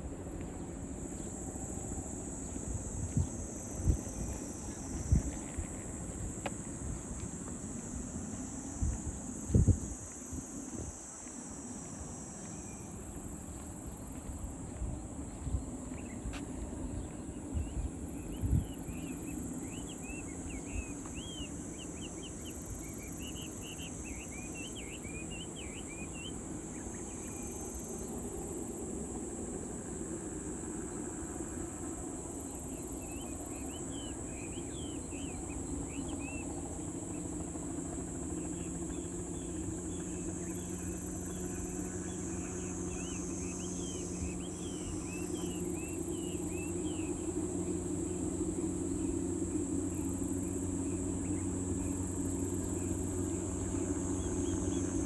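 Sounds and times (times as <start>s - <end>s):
faint hum: 0.0s - 55.0s
high insect drone: 0.0s - 55.0s
low engine rumble: 0.0s - 55.0s
birds chirping: 12.4s - 27.4s.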